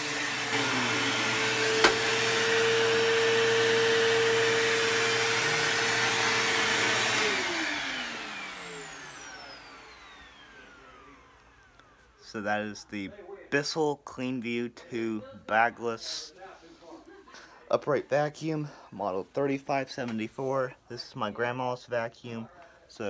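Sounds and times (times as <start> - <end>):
motor spinning down: 0.0 - 12.0
vacuum cleaner motor whine: 0.0 - 12.2.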